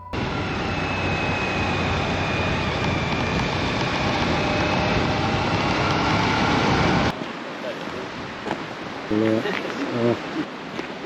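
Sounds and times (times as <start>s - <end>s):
wind noise on microphone: 0.0s - 7.2s.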